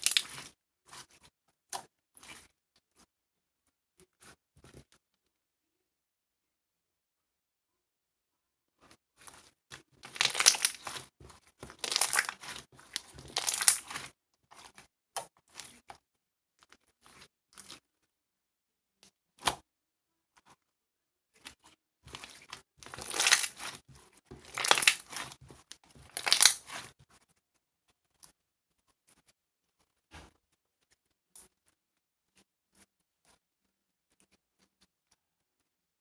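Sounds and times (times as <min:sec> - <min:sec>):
crinkling and tearing: 0:00.0 - 0:00.5, 0:10.0 - 0:14.7, 0:22.1 - 0:27.0.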